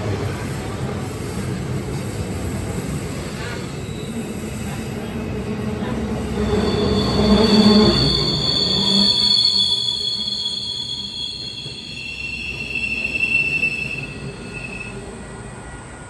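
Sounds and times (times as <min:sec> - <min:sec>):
train wheels rumbling on rail: 0:00.0 - 0:16.0
high-pitched wheel squeal: 0:06.1 - 0:15.2.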